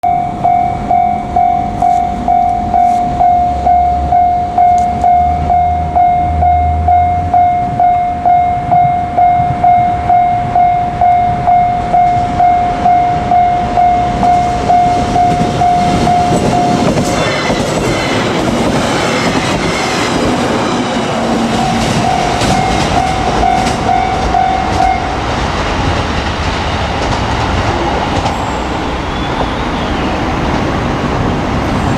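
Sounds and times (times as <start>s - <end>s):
level crossing warning bell: 0.0s - 25.4s
wheels clicking over rail joints: 11.3s - 28.6s.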